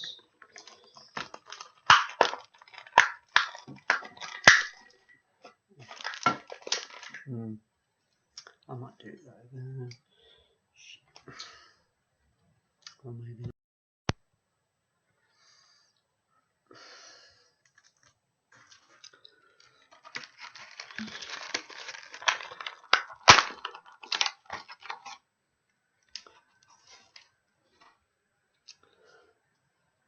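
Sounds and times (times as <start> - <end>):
packaging tearing and crackling: 0.4 - 4.9, 5.8 - 7.2, 19.7 - 25.2.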